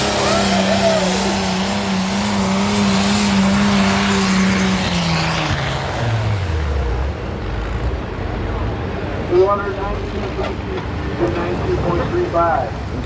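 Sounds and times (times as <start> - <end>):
tractor engine at high revs: 0.0 - 9.3.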